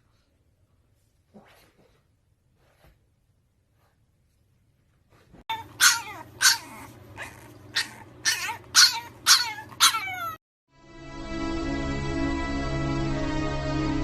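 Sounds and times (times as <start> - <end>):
puppy yelping: 5.5 - 10.4
soft music: 10.7 - 14.0.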